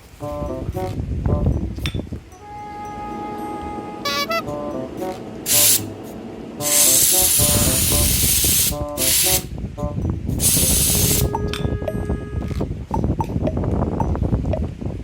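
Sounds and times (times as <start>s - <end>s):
light background music: 0.0s - 14.8s
hissing spray bursts: 5.4s - 5.9s, 6.6s - 9.5s, 10.4s - 11.3s.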